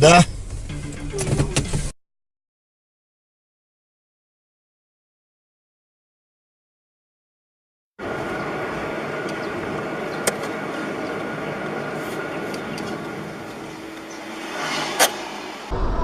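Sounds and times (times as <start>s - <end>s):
car engine and road noise: 0.0s - 2.0s, 8.0s - 16.0s.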